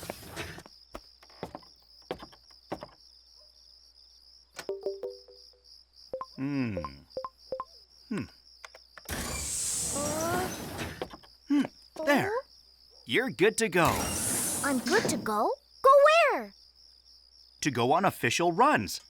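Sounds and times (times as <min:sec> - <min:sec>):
cricket-like chirping: 0:00.2 - 0:19.0
short electronic beeps: 0:04.7 - 0:05.4, 0:06.2 - 0:07.7
loud hiss: 0:09.2 - 0:10.2.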